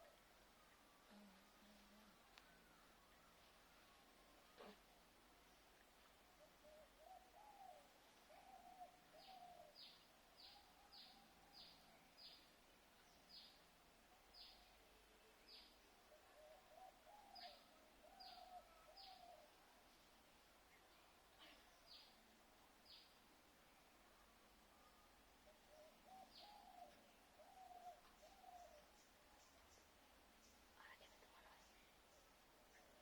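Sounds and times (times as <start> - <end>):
lower wavering bird calls: 25.5 - 29.1.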